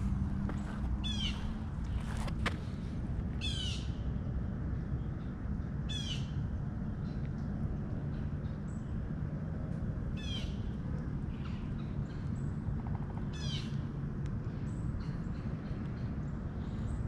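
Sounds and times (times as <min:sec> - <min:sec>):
bird calling: 0:00.0 - 0:01.6
low background rumble: 0:00.0 - 0:17.0.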